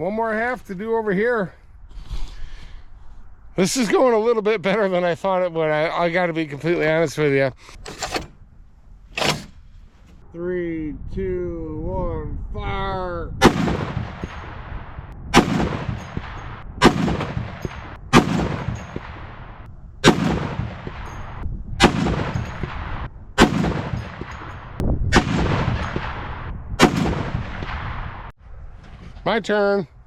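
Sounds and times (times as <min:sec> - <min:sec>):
rumbling gunshot echo: 0:13.4 - 0:14.7, 0:15.3 - 0:20.8, 0:25.1 - 0:28.3
heavy rifle shots: 0:16.8 - 0:19.2.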